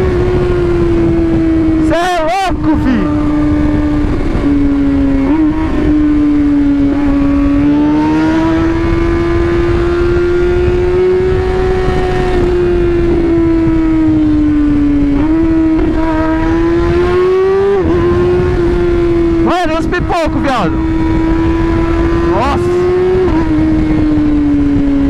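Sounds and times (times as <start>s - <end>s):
motorcycle engine running loud: 0.0s - 25.0s.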